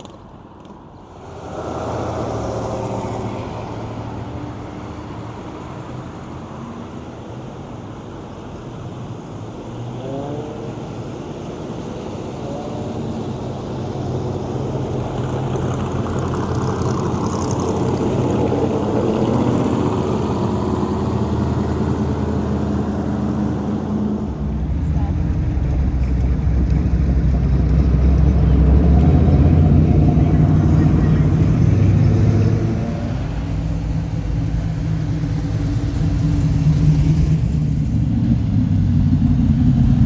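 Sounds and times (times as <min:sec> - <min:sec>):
short rising tones: 0:01.1 - 0:04.0.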